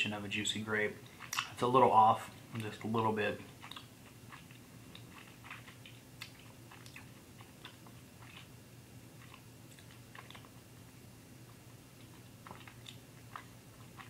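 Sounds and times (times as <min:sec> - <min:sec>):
mouth clicks of chewing: 0:01.0 - 0:01.6, 0:03.6 - 0:08.5, 0:09.2 - 0:10.6, 0:11.5 - 0:14.0.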